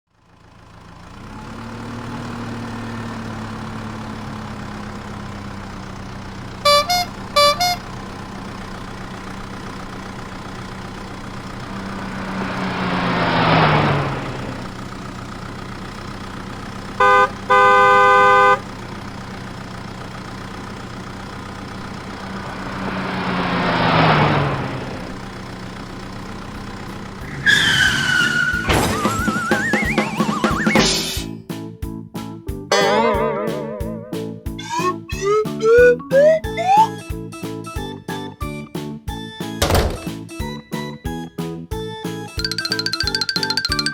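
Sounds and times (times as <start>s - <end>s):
vehicles passing by: 0.1s - 38.6s, 41.5s - 43.9s
vehicle engine running: 0.1s - 43.9s
car horn honking: 6.5s - 8.4s, 16.8s - 19.0s, 32.7s - 35.9s
music: 28.2s - 43.9s.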